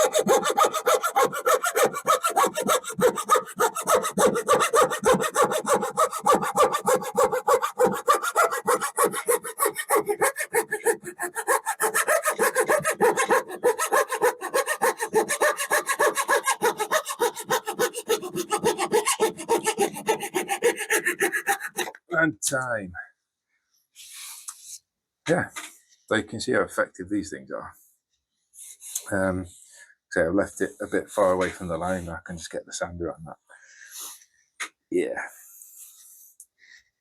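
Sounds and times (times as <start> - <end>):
handsaw cutting wood: 0.0 - 22.0.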